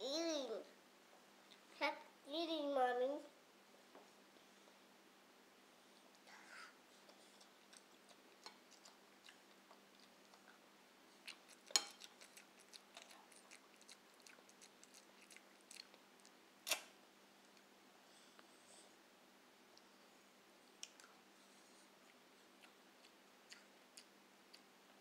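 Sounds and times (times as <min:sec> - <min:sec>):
child chewing noisily: 0:06.1 - 0:16.8, 0:20.7 - 0:25.0.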